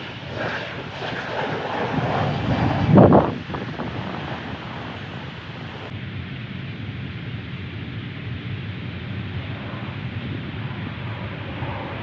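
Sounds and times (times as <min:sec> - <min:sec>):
wind on microphone: 0:00.0 - 0:06.0
jet airliner engines rumbling: 0:00.0 - 0:12.0.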